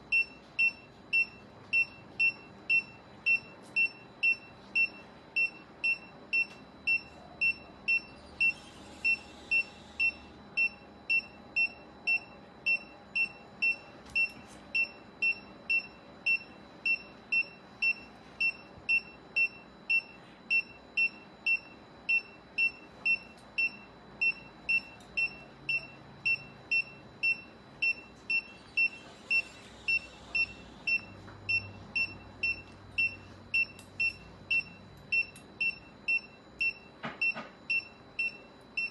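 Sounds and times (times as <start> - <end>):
patient monitor beeping: 0.0 - 38.9.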